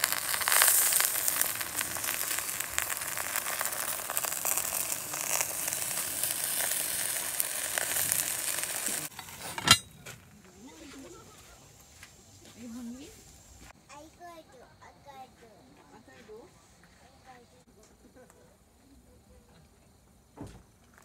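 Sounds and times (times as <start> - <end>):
food sizzling in a pot: 0.0 - 9.8, 10.5 - 13.8
sharp metal clank: 9.1 - 10.0.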